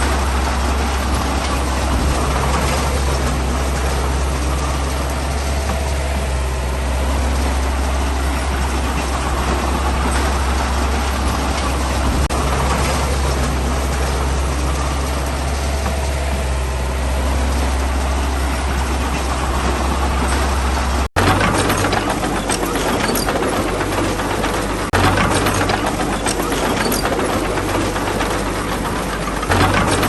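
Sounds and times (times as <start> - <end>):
clicking and rattling: 0.0 - 6.4, 7.1 - 16.5, 17.3 - 30.0
diesel earthmoving machinery drone: 0.0 - 30.0.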